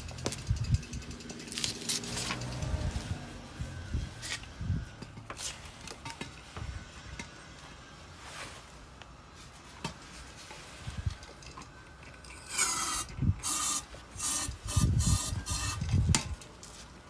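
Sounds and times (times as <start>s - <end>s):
rubbing and scraping strokes: 12.3s - 16.1s.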